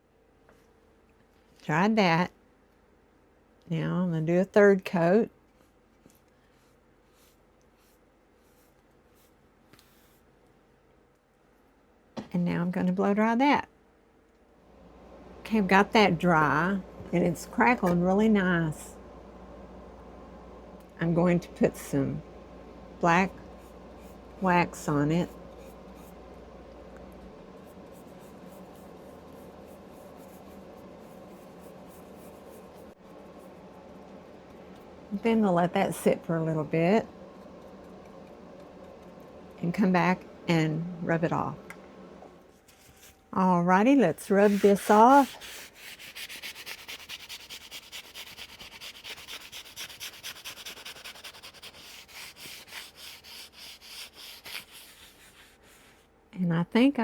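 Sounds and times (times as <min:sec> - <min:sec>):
scratchy rubbing on wood: 0:44.2 - 0:56.0.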